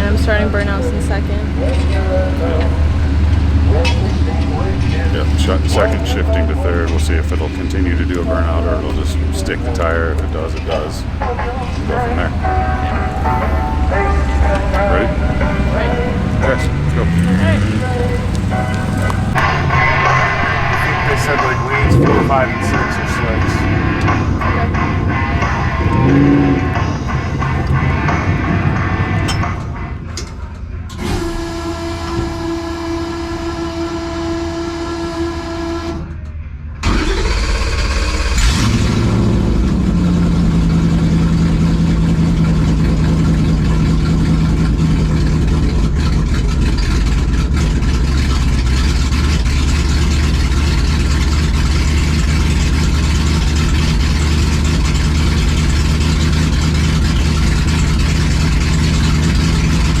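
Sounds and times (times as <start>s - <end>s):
held musical tone: 0.0s - 30.8s
drag car engine revving: 0.0s - 60.0s.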